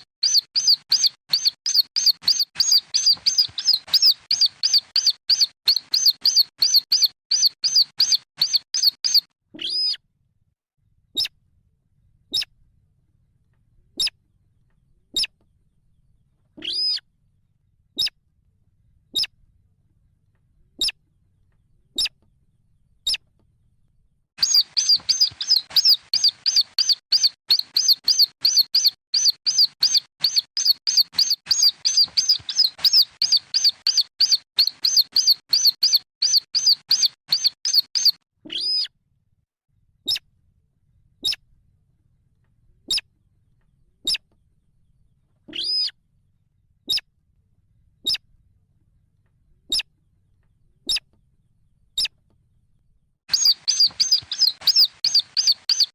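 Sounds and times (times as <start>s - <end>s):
rail chicks peeping: 0.0s - 10.0s, 16.6s - 17.0s, 24.4s - 38.9s, 45.5s - 45.9s, 53.3s - 55.9s.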